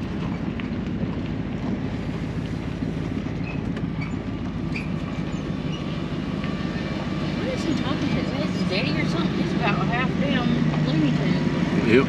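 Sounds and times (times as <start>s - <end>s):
vehicle engine humming: 0.0s - 12.0s
faint short squeaks: 3.4s - 6.0s.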